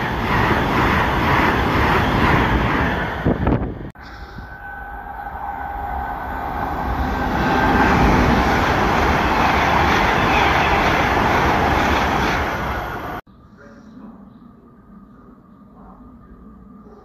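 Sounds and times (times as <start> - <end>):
train passing at speed: 0.0 - 13.3
faint high whine: 4.0 - 7.9.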